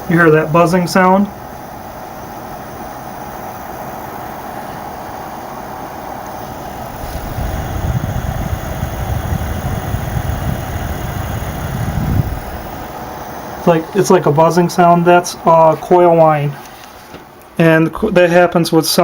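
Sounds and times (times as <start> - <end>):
coil whine buzzing: 0.0 - 19.0
cooler fans rushing: 0.0 - 19.0.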